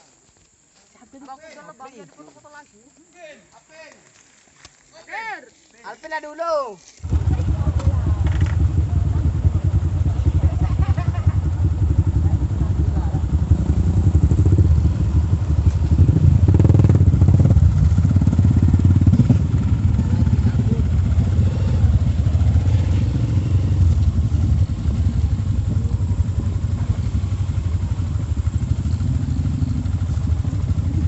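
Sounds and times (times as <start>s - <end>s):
motorcycle engine running: 7.0s - 31.0s.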